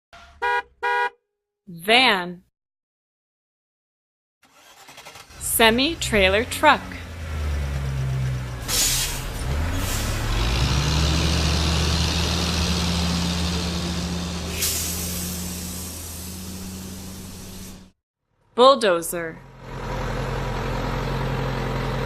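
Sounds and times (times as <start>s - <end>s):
truck diesel engine pulling away: 4.5s - 17.9s, 19.4s - 22.0s
air brake hisses: 8.6s - 10.3s, 14.4s - 17.9s.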